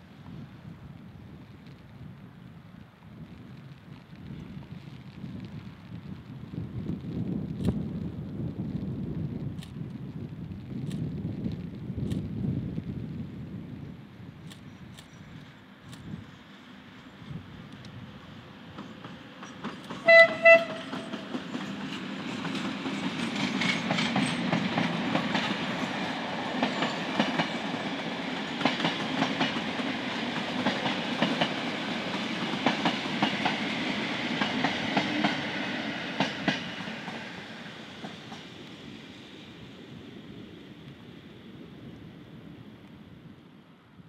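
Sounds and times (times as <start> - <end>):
train rumble: 0.1 - 44.0
wheels clicking over rail joints: 18.7 - 33.6
locomotive horn blasts: 20.0 - 21.1.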